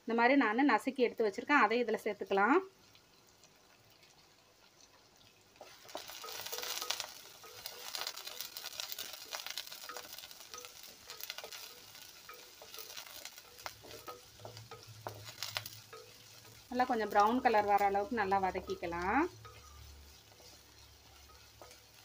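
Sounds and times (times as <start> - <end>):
garlic and shallots sizzling in oil: 0.0 - 22.0
wooden spatula scrapes and taps: 5.6 - 22.0.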